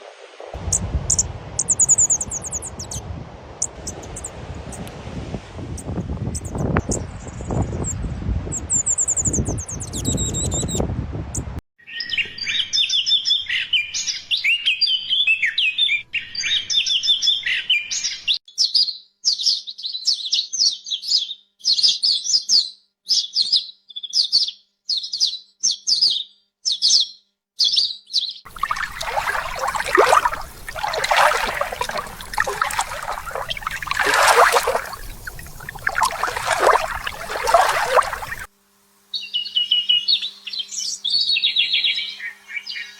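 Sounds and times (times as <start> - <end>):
songbirds singing: 20.7 - 38.5.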